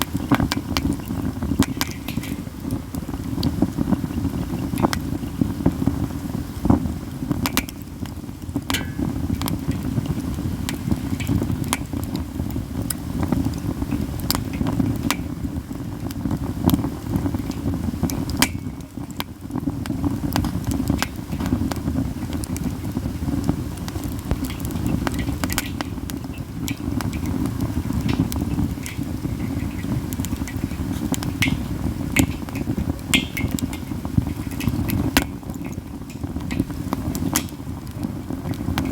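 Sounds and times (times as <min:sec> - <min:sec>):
sharp pops and snaps: 0:00.0 - 0:05.9, 0:06.6 - 0:38.9
campfire crackling: 0:00.0 - 0:38.9
low rumble of fire: 0:00.0 - 0:38.9.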